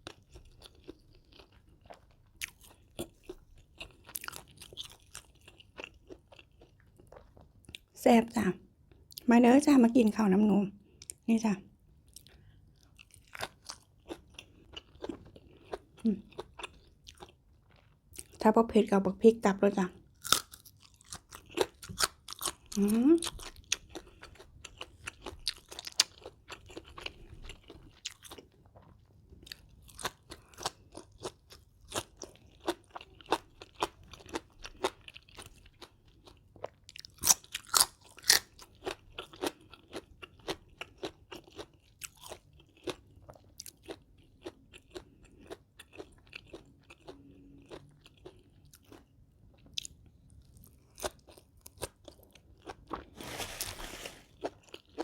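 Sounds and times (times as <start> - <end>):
person chewing crunchy food: 0.0 - 8.0, 12.0 - 18.4, 20.1 - 55.0.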